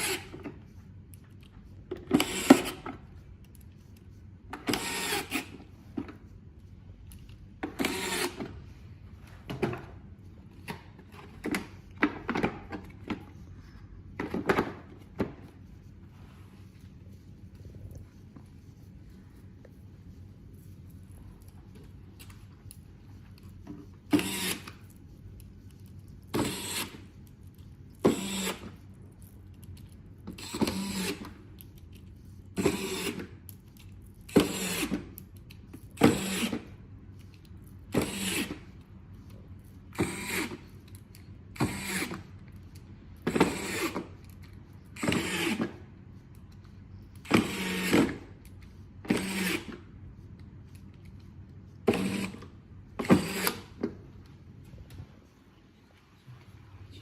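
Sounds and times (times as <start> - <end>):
small mechanism running: 24.1 - 36.7.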